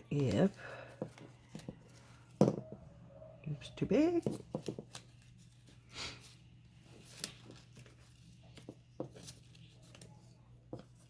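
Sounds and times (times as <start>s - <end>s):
paper rustling: 4.3s - 11.0s.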